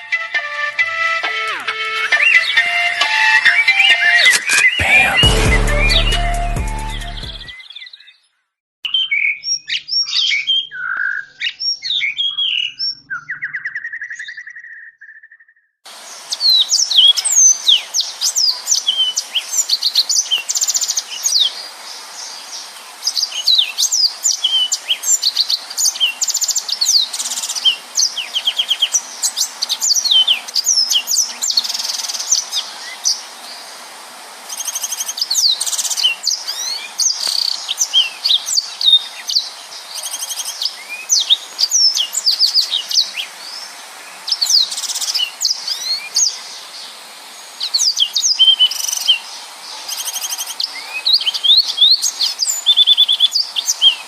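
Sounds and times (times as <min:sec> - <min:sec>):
canary singing: 0:00.0 - 0:08.0, 0:40.0 - 0:43.3.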